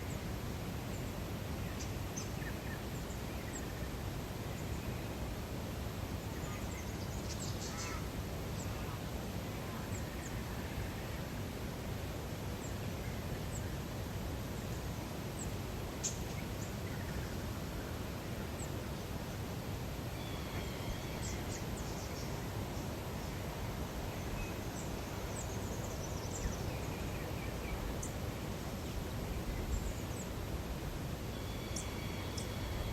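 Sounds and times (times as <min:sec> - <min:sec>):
high bird calls: 0:07.5 - 0:08.1.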